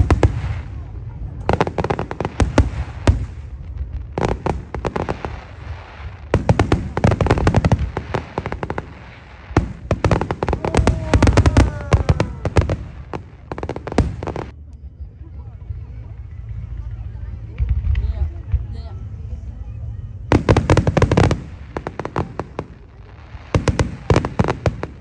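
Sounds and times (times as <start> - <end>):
fireworks bangs: 0.0 - 14.5, 20.3 - 25.0
fireworks crackling: 0.0 - 14.6, 20.3 - 25.0.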